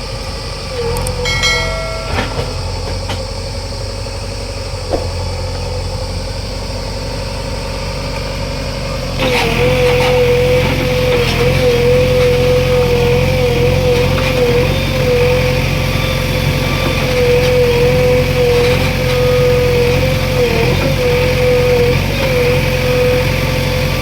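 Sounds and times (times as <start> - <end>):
wavering whine: 0.0 - 9.2
diesel engine running: 0.0 - 24.0.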